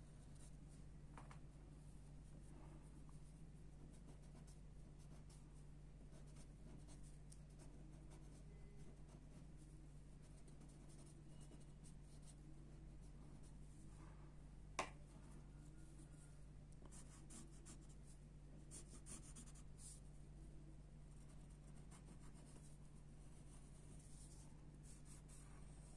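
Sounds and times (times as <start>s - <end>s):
steady low hum: 0.0s - 25.9s
pencil scratching on paper: 3.8s - 13.6s, 16.9s - 18.0s, 18.7s - 20.1s, 21.2s - 25.9s.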